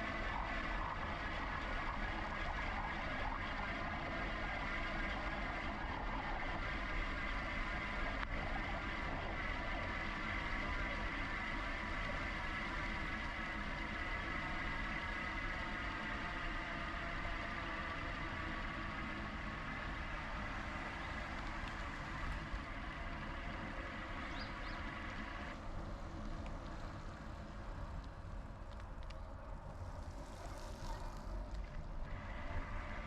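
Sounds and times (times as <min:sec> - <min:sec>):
electric bike low rumble: 0:00.0 - 0:33.0.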